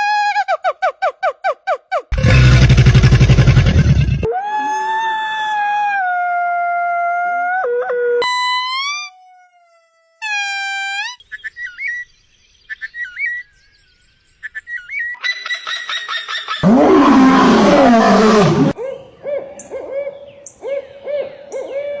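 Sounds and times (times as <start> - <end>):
fast repeated bird notes: 2.1 - 4.3.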